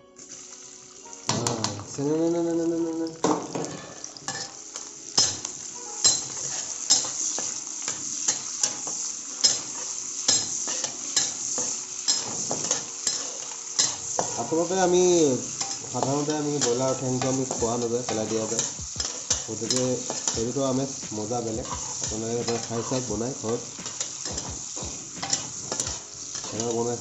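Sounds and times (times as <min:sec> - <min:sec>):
onions sizzling in hot oil: 0:00.0 - 0:27.0
metal spatula clacking on pan: 0:05.2 - 0:07.5, 0:09.4 - 0:09.7, 0:12.1 - 0:14.4, 0:18.2 - 0:20.5, 0:21.6 - 0:26.8.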